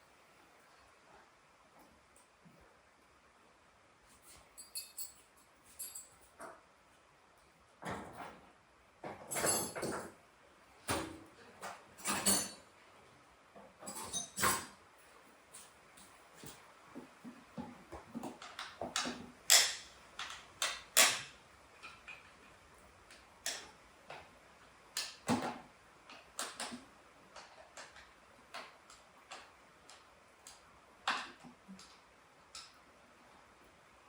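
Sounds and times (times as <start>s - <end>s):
hand tools clicking and knocking: 17.6s - 23.7s.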